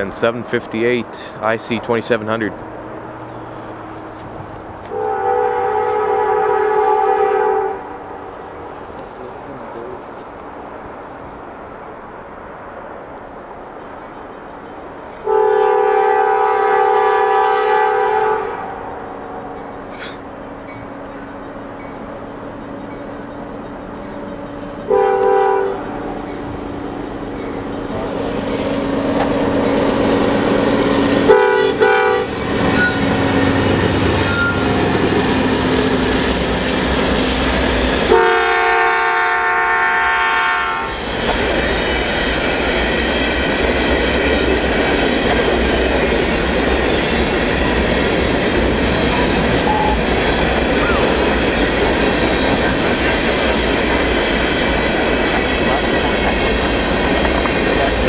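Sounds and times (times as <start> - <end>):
train rumbling and clattering: 0.0 - 58.0
locomotive air horn: 4.8 - 8.2, 15.2 - 18.8, 24.9 - 26.0, 31.2 - 34.8, 38.1 - 40.9, 49.6 - 50.1.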